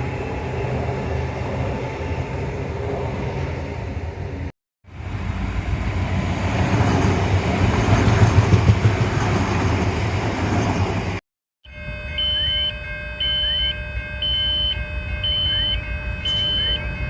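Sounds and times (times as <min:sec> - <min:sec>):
train passing: 0:00.0 - 0:17.0.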